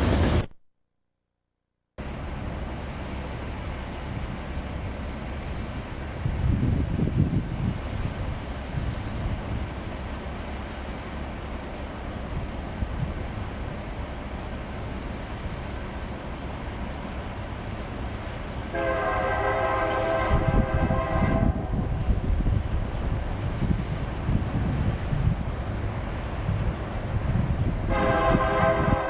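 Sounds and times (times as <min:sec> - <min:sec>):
train rumble: 0:00.0 - 0:00.5, 0:02.0 - 0:29.0
locomotive air horn blast: 0:18.7 - 0:22.1, 0:27.9 - 0:29.0.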